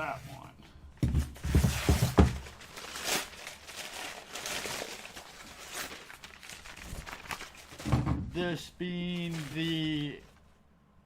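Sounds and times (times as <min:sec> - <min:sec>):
packaging rustling: 0:01.4 - 0:08.0, 0:09.0 - 0:10.6.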